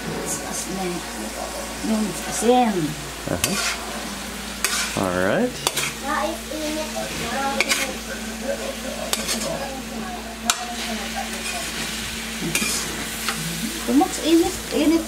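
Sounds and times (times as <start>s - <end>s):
food sizzling in a wok: 0.0s - 15.0s
metal spatula scraping a wok: 3.4s - 3.9s, 4.6s - 5.0s, 5.6s - 6.0s, 9.1s - 9.6s, 12.5s - 13.4s.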